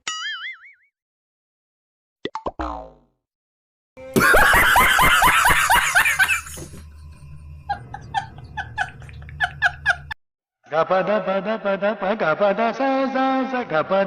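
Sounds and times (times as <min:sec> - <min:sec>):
person laughing loudly: 0:04.1 - 0:06.8, 0:07.7 - 0:10.2
low hum: 0:04.2 - 0:10.2.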